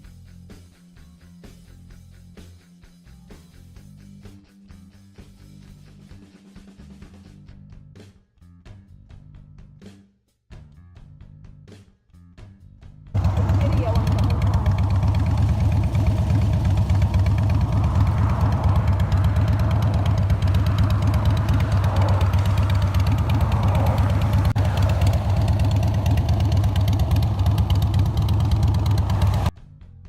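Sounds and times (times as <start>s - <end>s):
motorcycle engine idling: 13.2s - 29.5s.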